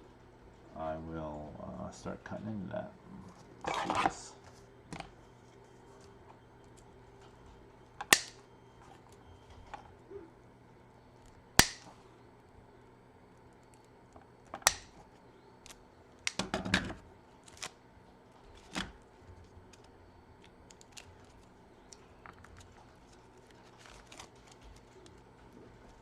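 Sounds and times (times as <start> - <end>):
cutters snipping wires: 11.6 - 11.9, 14.6 - 15.0.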